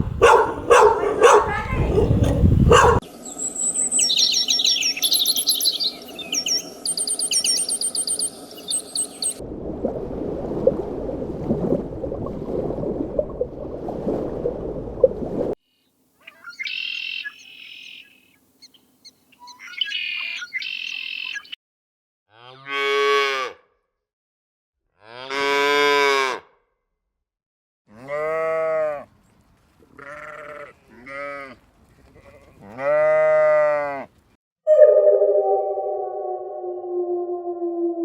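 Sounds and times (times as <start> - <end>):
high chirping calls: 0.0 - 9.4, 16.2 - 21.6
loud drawn-out livestock calls: 22.3 - 23.6, 25.0 - 26.4, 27.9 - 29.1, 30.0 - 31.6, 32.2 - 34.1.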